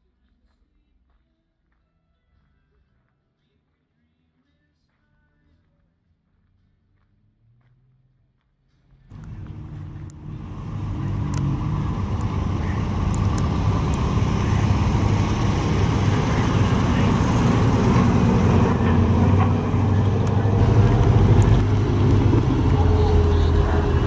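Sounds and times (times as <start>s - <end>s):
car engine running: 9.1s - 24.0s.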